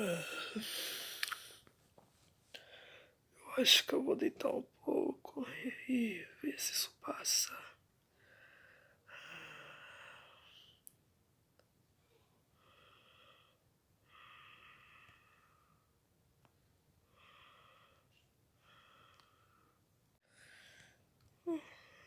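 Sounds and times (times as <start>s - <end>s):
soft sleep breathing: 0.0s - 1.7s, 2.5s - 3.2s, 7.5s - 10.8s, 12.0s - 16.0s, 17.0s - 22.0s.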